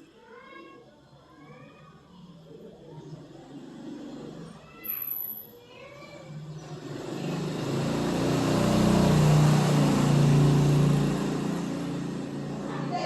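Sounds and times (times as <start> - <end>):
motor vehicle passing by: 6.2 - 13.0.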